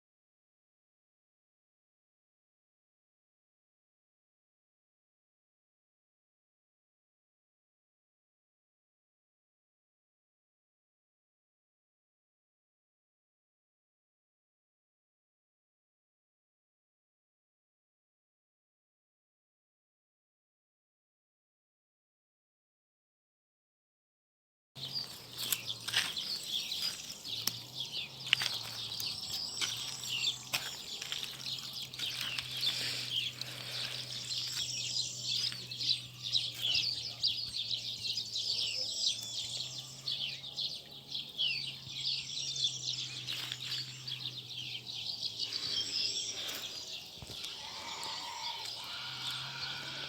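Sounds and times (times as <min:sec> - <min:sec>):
small birds chirping: 0:24.8 - 0:50.0.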